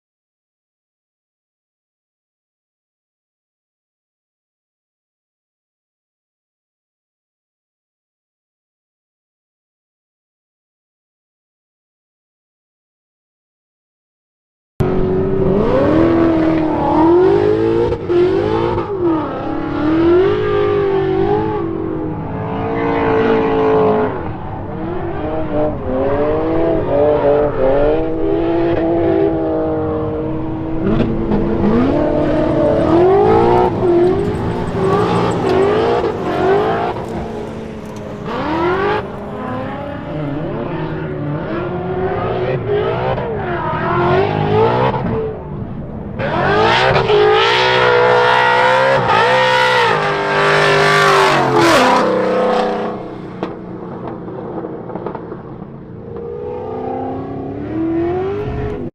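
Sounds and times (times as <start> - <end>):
car engine revving hard: 14.8 - 45.4, 46.2 - 55.4, 56.2 - 58.9
tyre and wind noise: 30.6 - 41.1.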